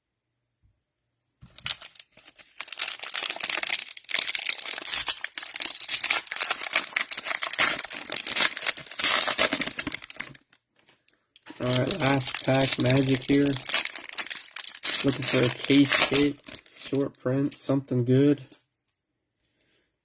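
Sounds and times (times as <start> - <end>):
cellophane wrapper crinkling: 1.4 - 17.0.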